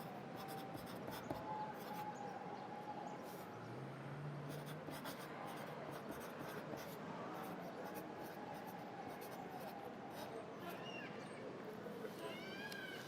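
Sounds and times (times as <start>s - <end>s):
pencil writing on paper: 0.0s - 2.0s, 4.5s - 8.1s, 9.2s - 10.3s
city ambience hum: 0.0s - 12.8s.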